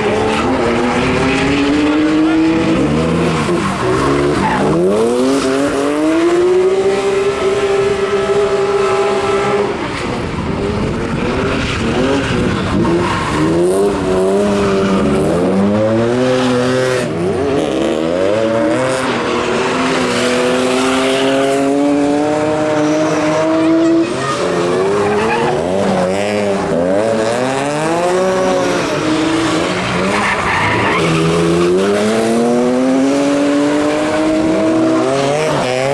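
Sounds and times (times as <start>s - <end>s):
car engine revving: 0.0s - 35.9s
tyres squealing: 22.8s - 26.1s.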